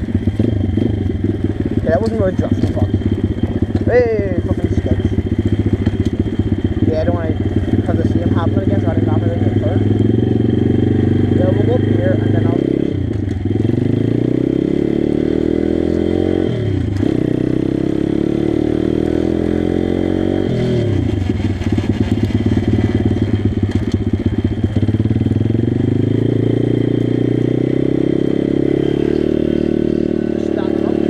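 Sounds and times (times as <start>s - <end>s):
pit bike engine revving: 0.0s - 31.0s.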